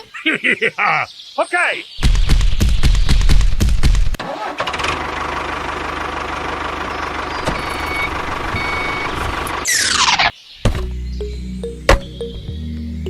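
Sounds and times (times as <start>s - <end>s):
construction vehicle engine running: 4.5s - 10.9s.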